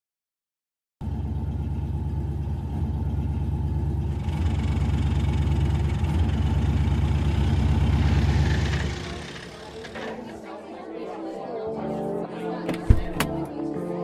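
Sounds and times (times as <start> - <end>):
car engine idling: 1.0 - 10.2.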